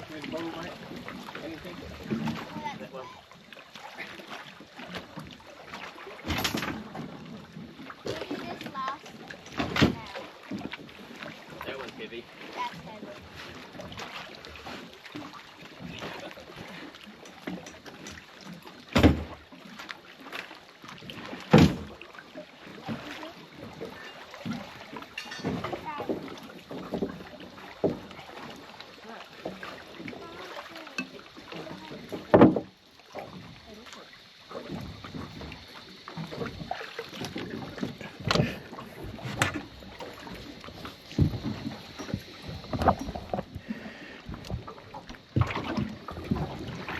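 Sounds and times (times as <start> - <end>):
water sloshing around boat: 0.0 - 46.9
sharp knocks against metal boat: 9.5 - 10.2, 18.9 - 19.4, 21.5 - 22.0, 32.1 - 32.8, 38.2 - 40.2, 41.1 - 43.6
heavy thumps on metal boat: 32.2 - 32.7.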